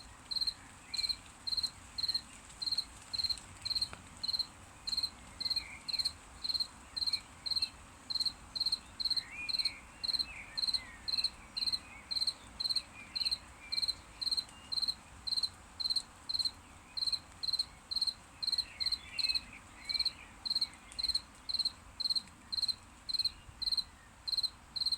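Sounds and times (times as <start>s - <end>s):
cricket chirping: 0.3s - 11.3s, 20.0s - 24.9s.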